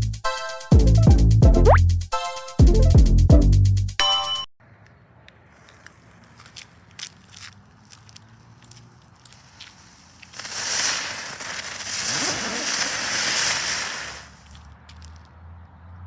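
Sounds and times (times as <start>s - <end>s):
faint firework crackles: 5.4s - 15.2s
spinning firework hiss: 9.4s - 14.6s.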